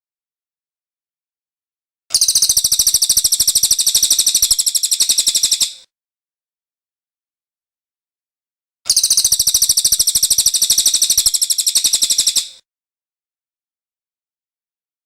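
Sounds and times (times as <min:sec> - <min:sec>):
songbird fast trill: 0:02.1 - 0:05.9, 0:08.9 - 0:12.6.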